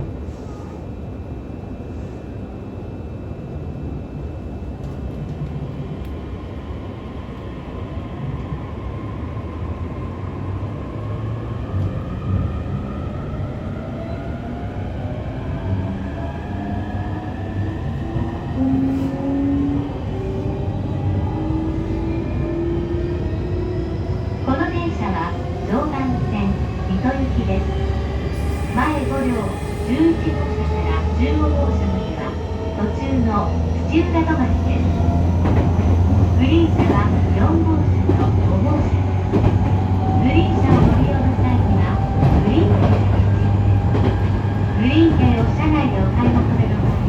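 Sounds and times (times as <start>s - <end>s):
wheels rumbling on rails: 25.3s - 47.0s.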